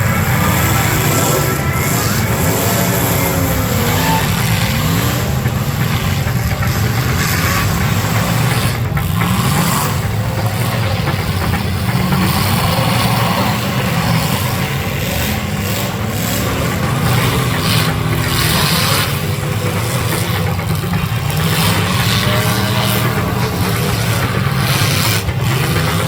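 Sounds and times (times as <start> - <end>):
car engines revving: 0.0 - 26.0.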